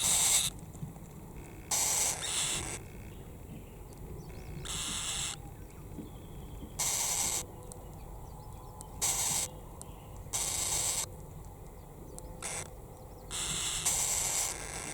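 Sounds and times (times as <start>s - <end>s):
wind and surf rumble: 0.0s - 10.4s.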